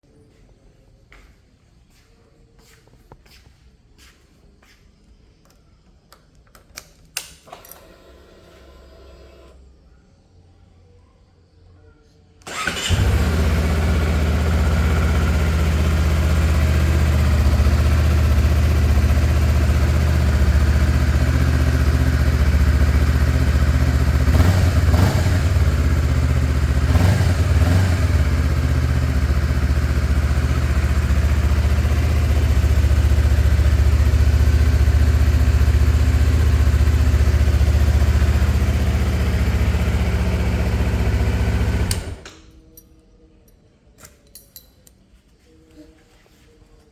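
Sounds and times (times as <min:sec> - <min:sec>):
motorcycle engine idling: 0:12.5 - 0:41.9.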